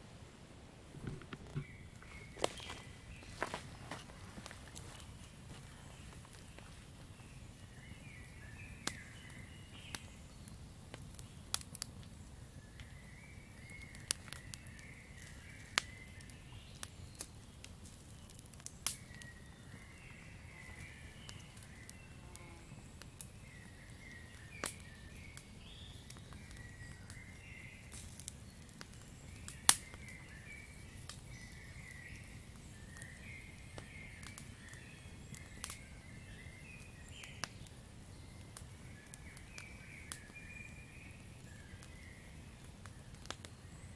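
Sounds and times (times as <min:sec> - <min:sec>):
campfire crackling and popping: 0:00.6 - 0:43.9.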